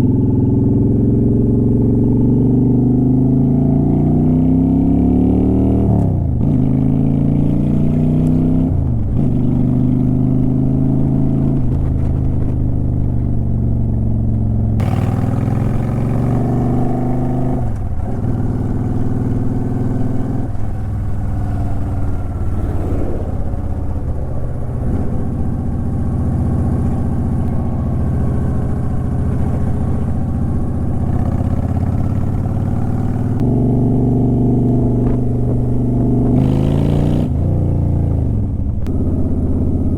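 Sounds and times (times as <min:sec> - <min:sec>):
motorcycle engine and exhaust: 0:00.0 - 0:39.9
wind noise on microphone: 0:08.6 - 0:13.7, 0:34.4 - 0:39.8.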